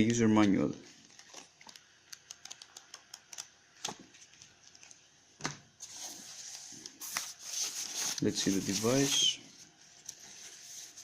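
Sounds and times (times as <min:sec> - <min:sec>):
packaging rustling: 0:00.9 - 0:02.0.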